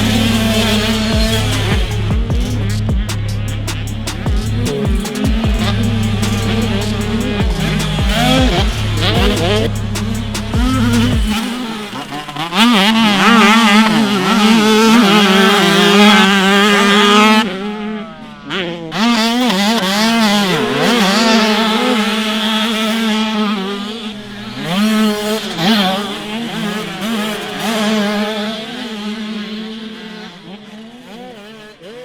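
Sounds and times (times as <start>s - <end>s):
motocross engines revving: 0.0s - 32.0s.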